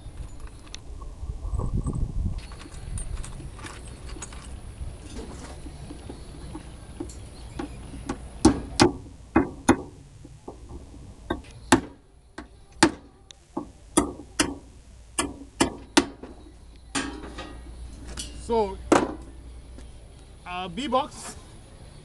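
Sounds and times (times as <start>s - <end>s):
hammer driving nails into wood: 8.4s - 10.0s, 15.2s - 16.2s.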